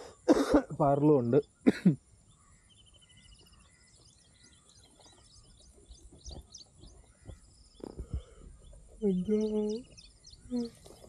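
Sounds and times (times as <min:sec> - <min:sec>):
birds chirping: 0:00.0 - 0:11.0
soft low thumps: 0:04.8 - 0:10.7.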